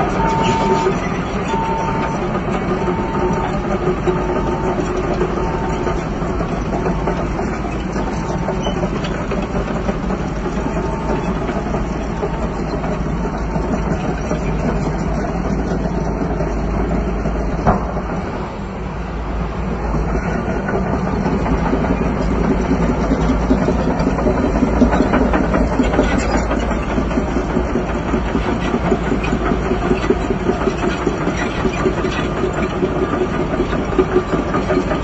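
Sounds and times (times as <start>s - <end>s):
reversing alarm beeping: 0.0s - 6.1s
heavy diesel engine running: 0.0s - 35.0s.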